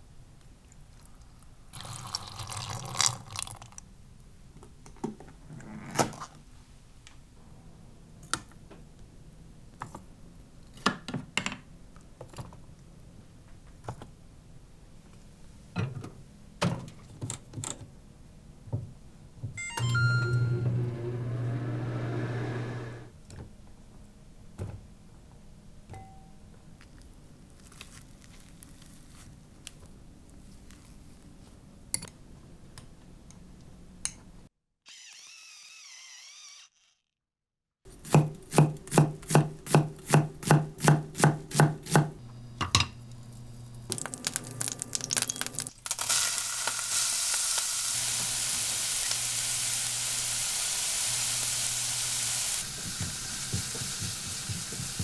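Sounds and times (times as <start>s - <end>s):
knife chopping on cutting board: 37.9s - 42.2s, 52.7s - 55.0s
kitchen knocks and clatters: 38.2s - 43.0s, 52.6s - 55.0s.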